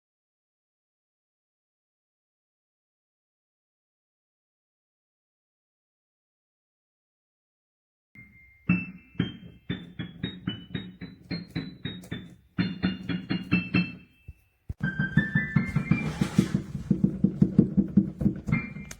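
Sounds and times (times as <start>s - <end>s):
piano melody: 8.2s - 18.9s.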